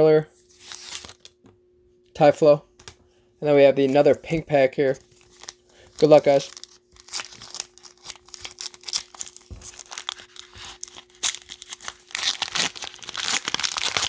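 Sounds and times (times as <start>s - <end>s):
cellophane wrapper crinkling: 4.8s - 14.0s.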